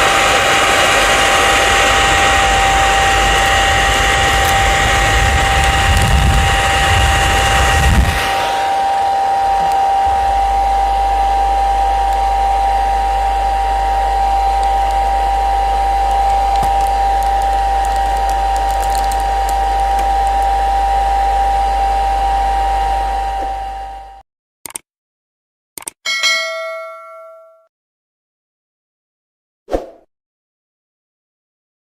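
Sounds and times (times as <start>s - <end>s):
hair dryer blowing: 0.0s - 24.2s
low hum: 0.0s - 24.2s.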